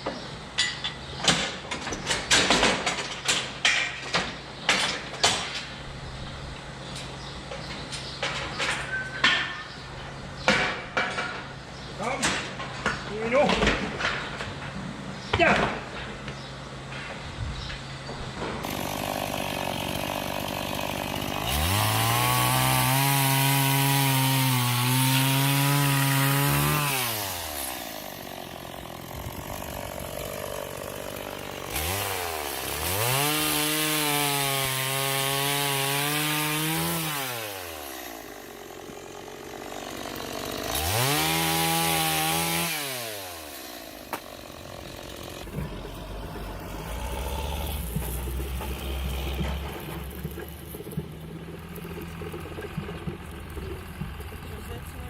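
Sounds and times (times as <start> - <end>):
chainsaw revving: 18.6 - 55.0.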